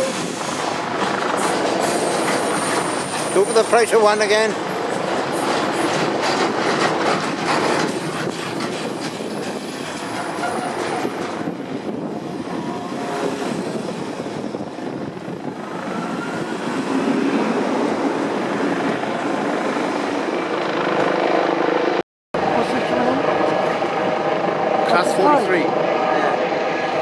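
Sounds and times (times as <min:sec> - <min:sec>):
freight train clattering past: 0:00.0 - 0:15.4
passenger train passing: 0:00.0 - 0:27.0
wheel squeal: 0:09.6 - 0:11.3.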